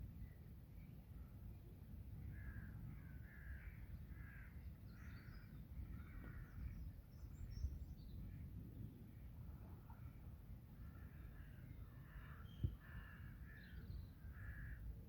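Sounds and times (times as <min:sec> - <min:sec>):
harsh crow-like bird calls: 0:02.2 - 0:07.0, 0:10.8 - 0:14.9
small birds chirping: 0:02.3 - 0:08.9, 0:10.8 - 0:14.8.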